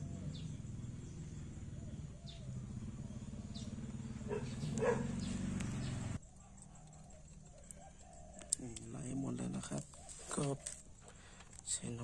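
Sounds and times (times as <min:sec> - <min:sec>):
steady low hum: 0:00.0 - 0:07.8
birds chirping: 0:00.0 - 0:12.0.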